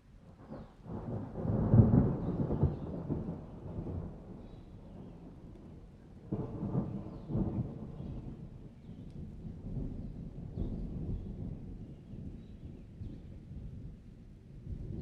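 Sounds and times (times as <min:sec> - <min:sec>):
rain: 0:00.0 - 0:15.0
thunder rumbling: 0:00.4 - 0:12.4.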